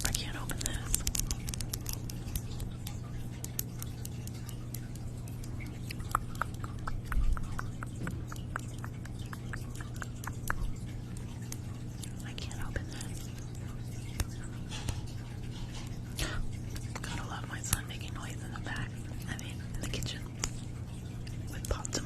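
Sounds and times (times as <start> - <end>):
fingernails clicking on a package: 0.0 - 5.8
steady low hum: 0.0 - 22.0.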